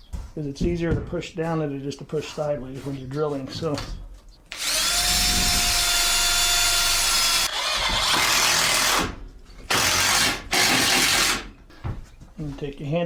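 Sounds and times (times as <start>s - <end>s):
electric drill boring into wood: 4.5s - 11.5s.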